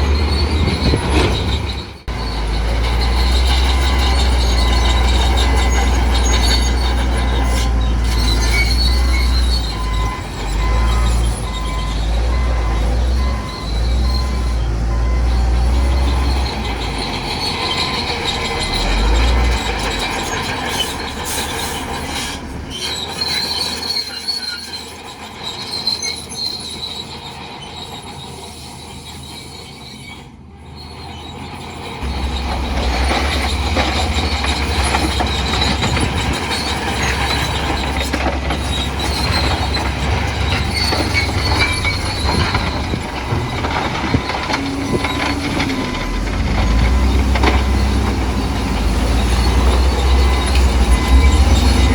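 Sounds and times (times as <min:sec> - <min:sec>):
bulldozer engine running: 0:00.0 - 0:29.8, 0:30.4 - 0:51.9
steel tracks squealing and clanking: 0:00.0 - 0:51.9.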